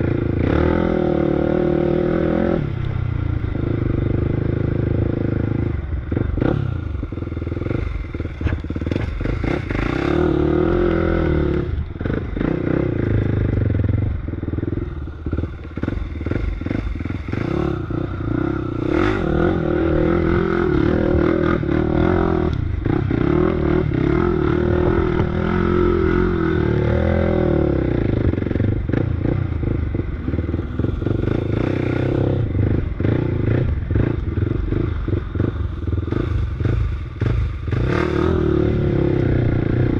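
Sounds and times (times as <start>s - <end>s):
off-road vehicle engine revving: 0.0s - 2.8s, 3.6s - 13.9s, 14.7s - 39.9s
rattling and clatter of vehicle: 7.1s - 10.0s.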